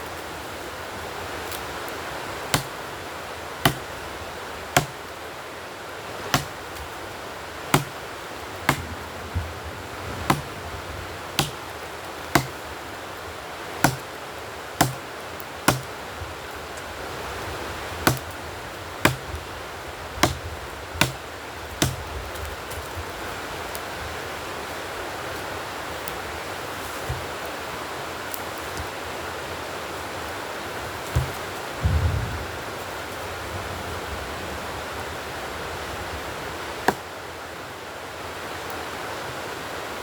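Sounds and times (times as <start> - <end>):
rushing background hiss: 0.0 - 40.0
chopping blows on wood: 2.5 - 2.8, 3.6 - 3.9, 4.8 - 5.0, 6.3 - 6.9, 7.7 - 8.0, 8.7 - 9.0, 10.3 - 10.6, 11.4 - 11.6, 12.3 - 12.6, 13.8 - 14.1, 14.8 - 15.0, 15.7 - 15.9, 18.0 - 18.4, 19.0 - 19.4, 20.2 - 21.2, 21.8 - 22.1, 27.0 - 27.4, 31.1 - 32.2.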